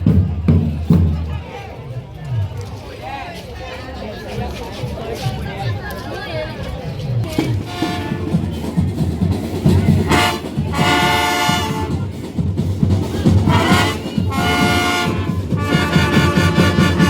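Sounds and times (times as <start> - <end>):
marching drums beat: 0.0 - 1.3, 7.3 - 17.0
brass playing held chords: 7.6 - 8.6, 10.0 - 12.2, 13.3 - 17.0.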